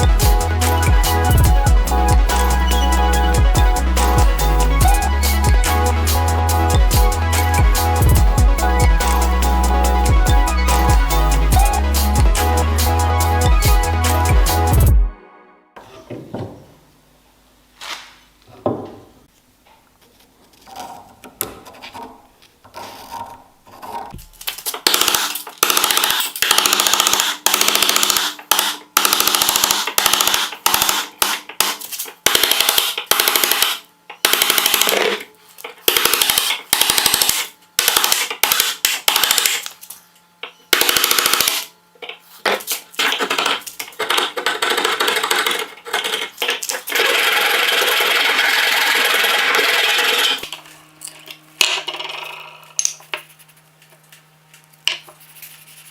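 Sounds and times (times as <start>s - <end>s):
electric power tool running: 43.0s - 51.1s.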